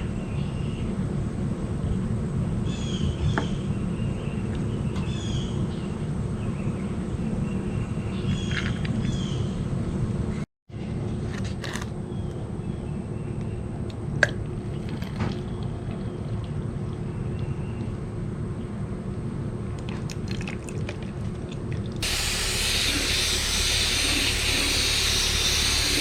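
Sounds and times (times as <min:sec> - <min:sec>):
birds chirping: 0:02.7 - 0:09.6, 0:22.0 - 0:26.0
electric fan rushing: 0:22.0 - 0:26.0.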